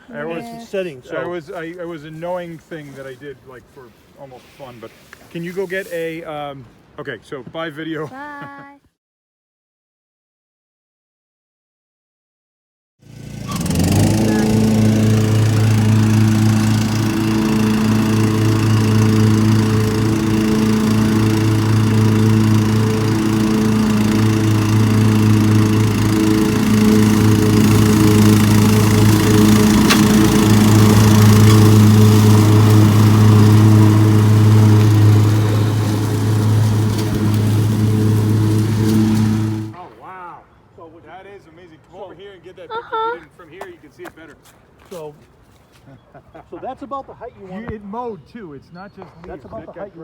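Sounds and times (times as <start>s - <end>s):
lawn mower engine running: 13.0s - 39.8s.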